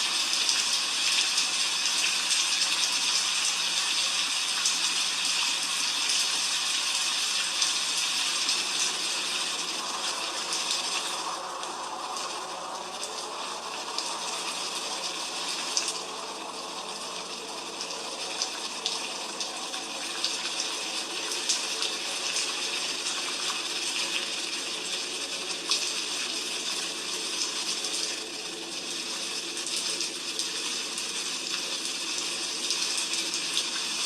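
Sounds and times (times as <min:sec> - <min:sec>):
heavy rain hissing: 0:06.5 - 0:31.5.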